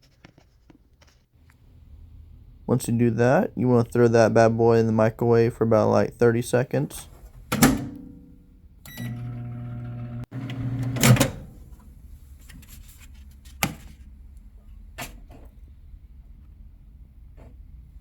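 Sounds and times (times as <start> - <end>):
microwave oven humming: 8.8 - 12.0.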